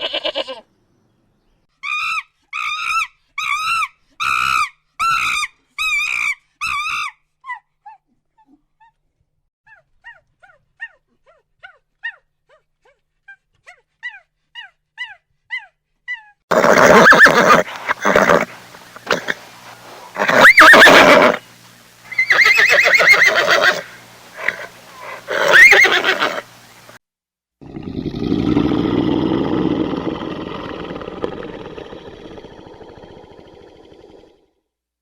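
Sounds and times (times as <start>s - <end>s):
horse neighing: 16.5s - 21.4s, 22.1s - 26.6s.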